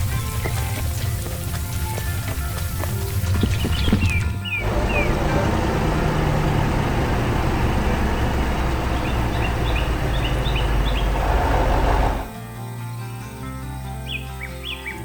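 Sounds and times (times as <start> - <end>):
birds chirping faintly: 0.0 - 12.3
diesel engine running under load: 3.1 - 12.3.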